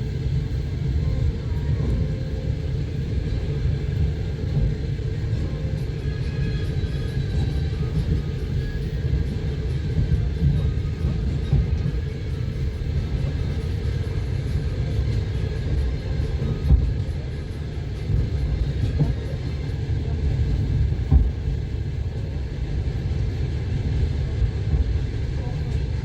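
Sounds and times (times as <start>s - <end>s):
train rumbling on rails: 0.0s - 26.0s
train wheel knocks: 20.6s - 21.6s.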